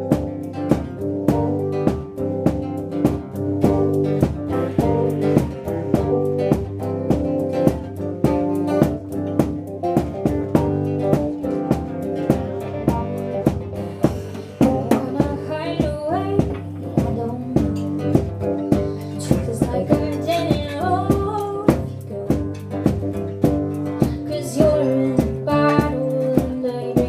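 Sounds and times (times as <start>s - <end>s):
drum kit hits: 0.0s - 26.6s
bass and guitar: 0.0s - 27.0s
person singing: 14.1s - 18.1s, 18.7s - 22.6s, 24.0s - 27.0s.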